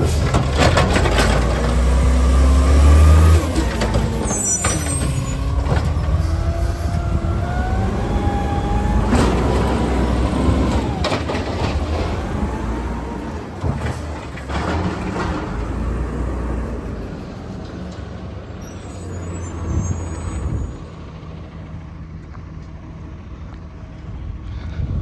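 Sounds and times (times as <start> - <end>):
garbage truck engine rumbling: 0.0 - 24.5
wavering squeals: 3.7 - 9.1.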